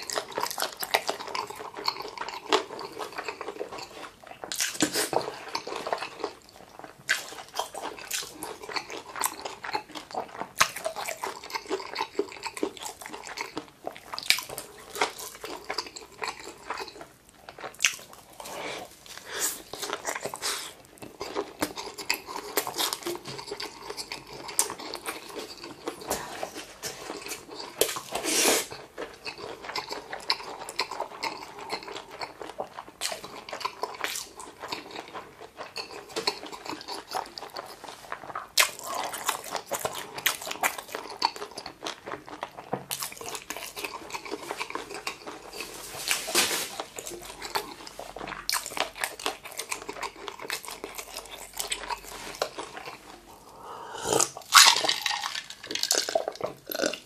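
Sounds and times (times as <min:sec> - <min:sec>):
person chewing: 0:00.0 - 0:57.0
wet mouth clicks: 0:52.7 - 0:57.0.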